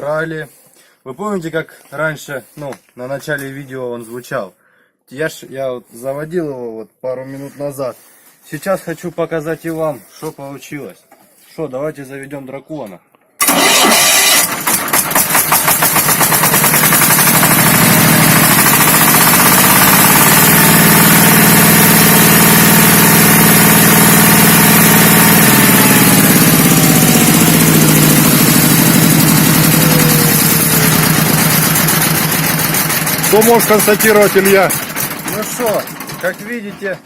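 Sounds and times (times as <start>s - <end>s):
diesel engine starting and revving: 13.4s - 36.7s.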